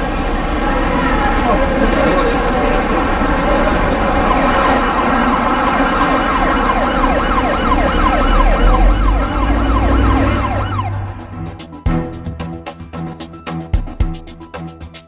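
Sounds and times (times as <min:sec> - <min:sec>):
dense din of steady tones: 0:00.0 - 0:13.1
emergency siren yelping: 0:00.4 - 0:11.7
deep rumble: 0:02.5 - 0:12.2.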